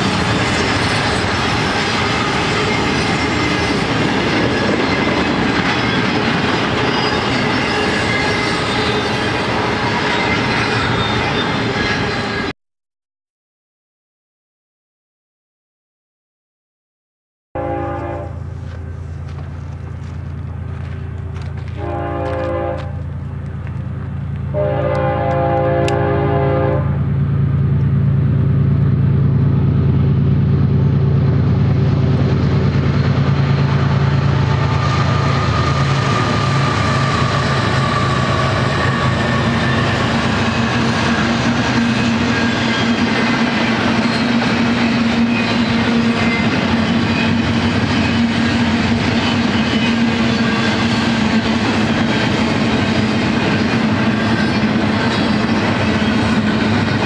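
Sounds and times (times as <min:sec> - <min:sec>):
low rumble of diesel locomotives: 0:00.0 - 0:12.5, 0:17.6 - 0:57.0
train wheels clickety-clack on rails: 0:00.0 - 0:12.5, 0:18.0 - 0:57.0
locomotive horn blasts: 0:17.6 - 0:18.5, 0:21.7 - 0:23.1, 0:24.5 - 0:27.0.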